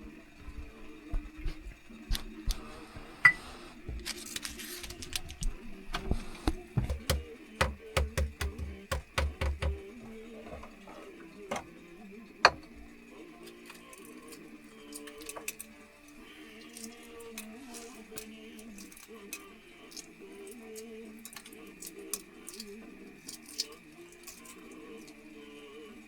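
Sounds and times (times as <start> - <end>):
dull thuds: 5.9 - 10.7
sharp clicks and knocks: 6.0 - 9.9.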